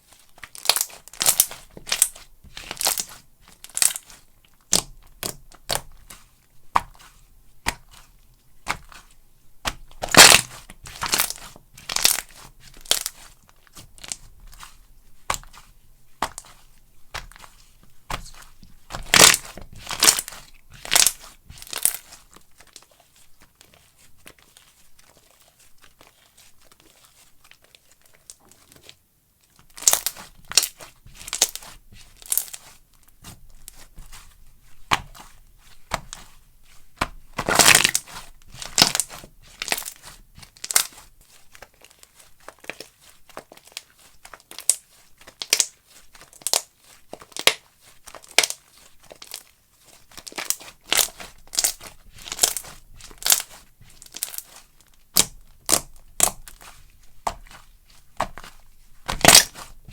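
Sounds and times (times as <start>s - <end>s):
slime squeezed by hand crackling: 0.5s - 5.8s, 9.6s - 13.3s, 18.0s - 22.2s, 37.4s - 41.0s, 58.2s - 59.9s.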